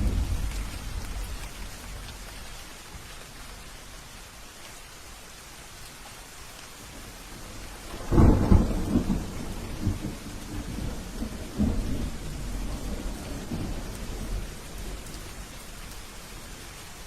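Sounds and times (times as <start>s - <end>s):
thunderclap rumbling: 0.0s - 2.3s, 7.8s - 15.2s
steady rainfall: 0.0s - 17.0s.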